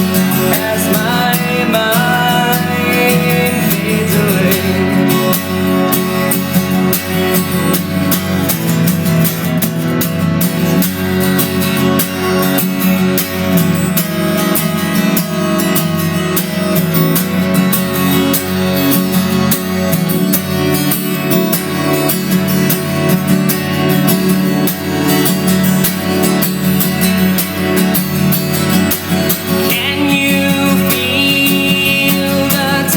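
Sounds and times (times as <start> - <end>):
acoustic guitar strumming: 0.0 - 32.9.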